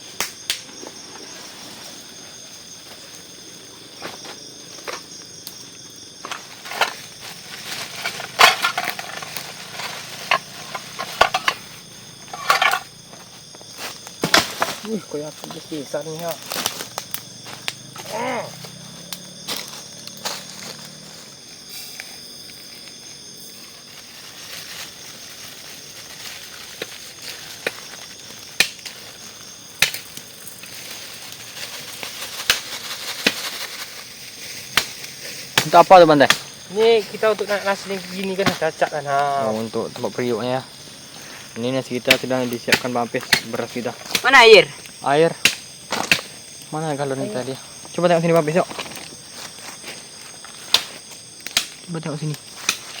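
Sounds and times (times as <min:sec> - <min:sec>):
insects chirring: 0:00.0 - 0:53.0
camp gear clattering: 0:06.2 - 0:18.5
blade chopping wood: 0:45.4 - 0:46.3.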